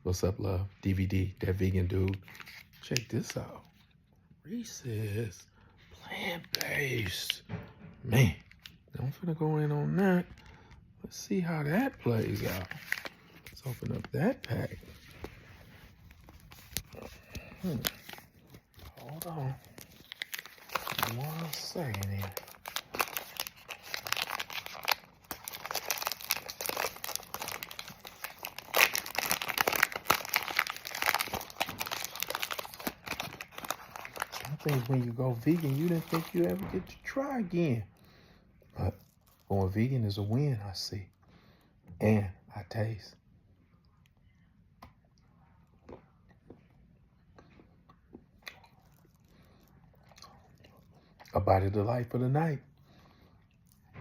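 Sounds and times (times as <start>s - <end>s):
plastic wrapper crinkling: 1.6s - 4.0s, 11.7s - 37.6s
chewing and mouth clicks: 44.8s - 51.3s.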